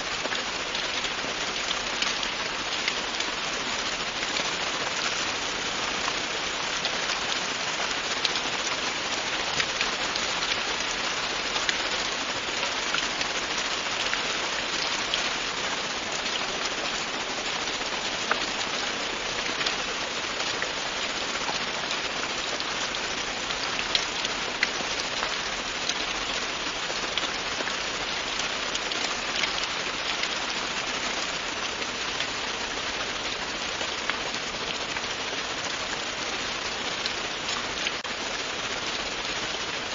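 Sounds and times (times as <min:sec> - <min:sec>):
rain falling on hard surface: 0:00.0 - 0:39.9.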